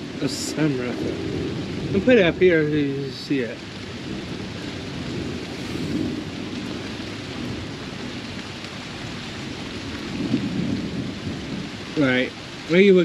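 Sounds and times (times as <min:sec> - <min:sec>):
heavy rain pouring: 0:00.0 - 0:13.0
low rumble: 0:05.1 - 0:07.8.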